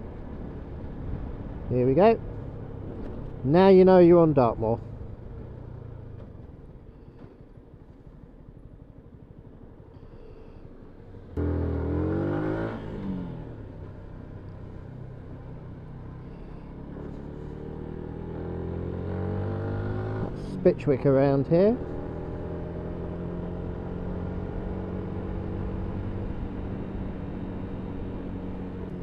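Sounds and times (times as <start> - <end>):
motorcycle engine running: 4.8 - 14.3.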